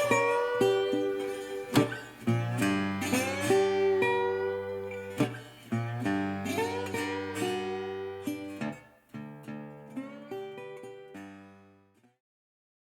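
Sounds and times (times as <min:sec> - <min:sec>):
acoustic guitar music: 0:00.0 - 0:12.2.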